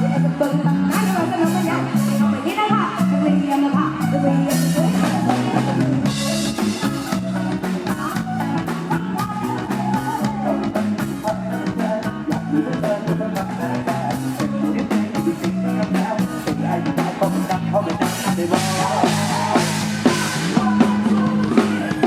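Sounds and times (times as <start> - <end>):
live band music: 0.0 - 22.0
drum kit fast beat: 4.5 - 22.0.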